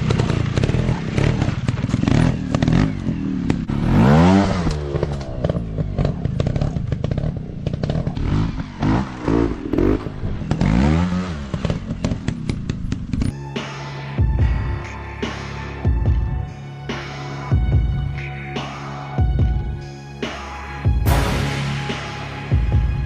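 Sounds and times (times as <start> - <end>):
dirt bike engines revving: 0.0 - 13.4.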